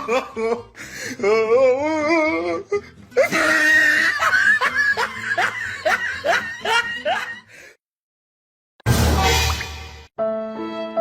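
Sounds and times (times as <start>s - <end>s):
person laughing hard: 0.0s - 1.5s, 3.2s - 7.6s.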